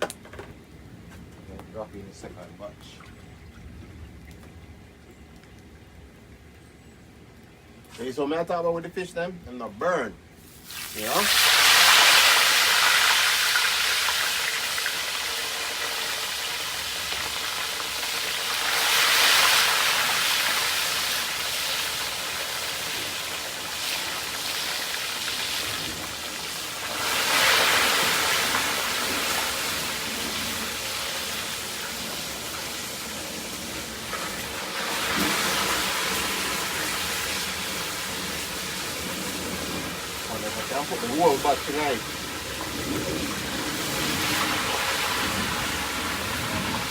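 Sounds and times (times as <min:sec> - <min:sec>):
fish frying in hot oil: 0:10.4 - 0:46.9.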